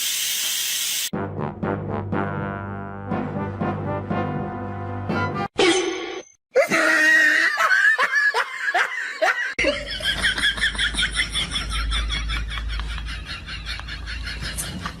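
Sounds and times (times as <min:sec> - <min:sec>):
people laughing hard: 0:06.6 - 0:15.0.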